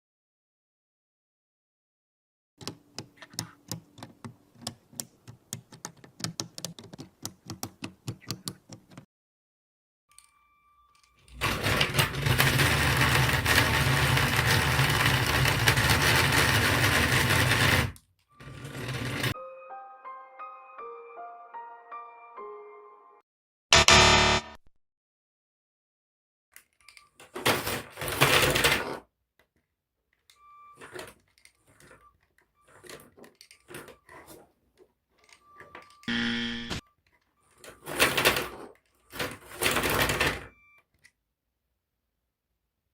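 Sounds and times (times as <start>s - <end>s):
toy motors and gears whirring: 11.0s - 19.4s
buzzing whine: 23.8s - 24.6s, 36.1s - 36.8s.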